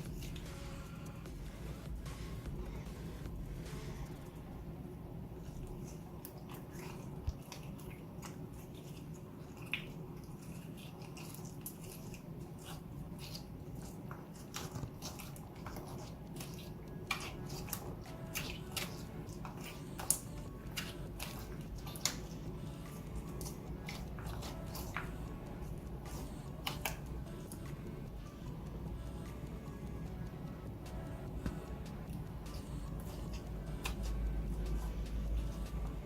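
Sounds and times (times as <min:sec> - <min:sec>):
low background hum: 0:00.0 - 0:36.0.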